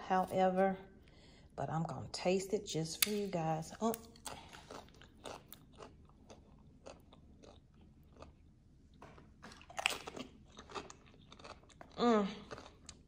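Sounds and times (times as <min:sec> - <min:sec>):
tortilla chip crunching: 0:04.1 - 0:08.6, 0:09.5 - 0:13.0.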